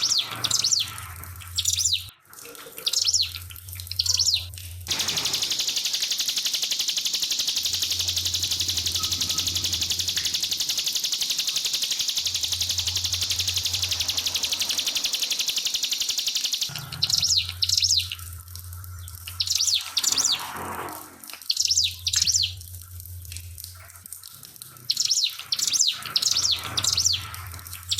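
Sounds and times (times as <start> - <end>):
bird singing high trill: 0.0 - 2.1, 2.8 - 3.4, 4.0 - 18.3, 19.0 - 20.5, 21.5 - 22.6, 24.9 - 27.9
faint trickling water: 0.0 - 6.4, 16.7 - 27.9
steady low hum: 4.5 - 19.4.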